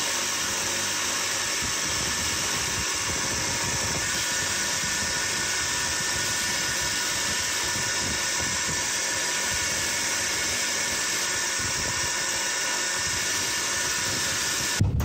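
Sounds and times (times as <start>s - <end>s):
motor-driven machine whirring: 0.0s - 15.0s.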